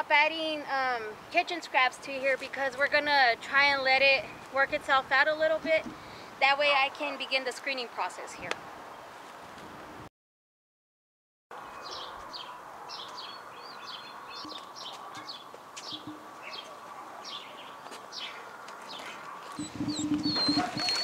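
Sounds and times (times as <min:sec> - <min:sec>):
small birds chirping: 0:11.6 - 0:21.0.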